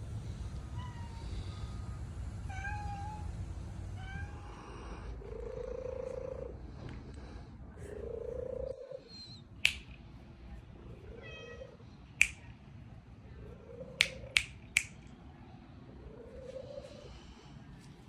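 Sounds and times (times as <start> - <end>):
faint low animal calls: 7.7 - 9.6, 15.8 - 17.6
sharp snapping clicks: 9.6 - 10.1, 12.2 - 12.6, 14.0 - 15.1.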